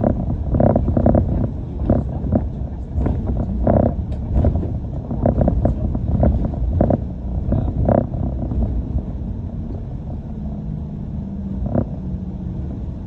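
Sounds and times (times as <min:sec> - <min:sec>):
short knocks or rattles: 0:00.0 - 0:08.7
bus engine and road rumble: 0:00.0 - 0:13.0.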